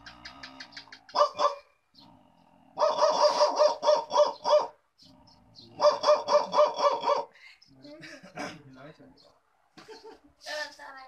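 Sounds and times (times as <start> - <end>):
man imitating dog barks: 5.8 - 7.3.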